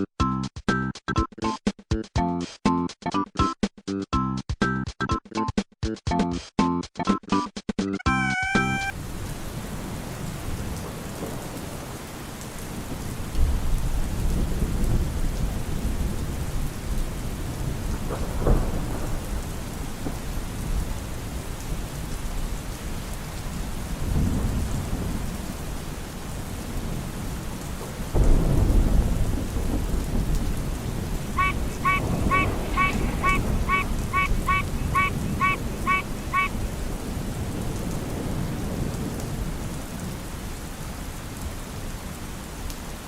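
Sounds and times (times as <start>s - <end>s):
steady rain falling: 8.7s - 43.0s
thunder rumbling: 8.9s - 40.3s.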